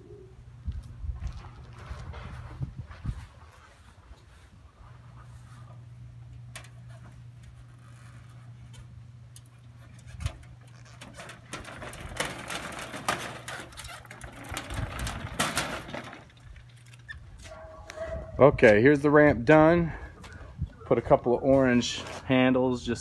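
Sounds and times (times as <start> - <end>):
steady low hum: 0.0 - 23.0
clattering and rattling on metal ramp: 9.9 - 16.8.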